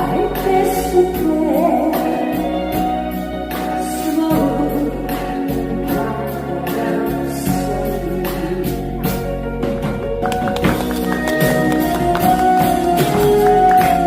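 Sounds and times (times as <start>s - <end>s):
person singing a slow ballad: 0.0s - 9.6s
instrumental accompaniment with steady beat: 0.0s - 14.0s.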